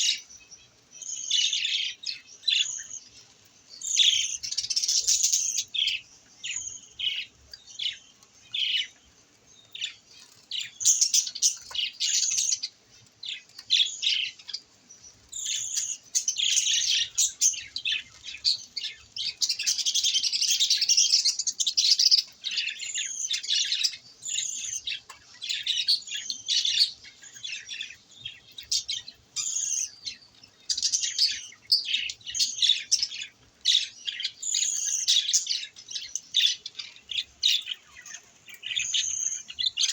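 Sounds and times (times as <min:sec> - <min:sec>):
budgerigars chirping: 0:15.4 - 0:39.9.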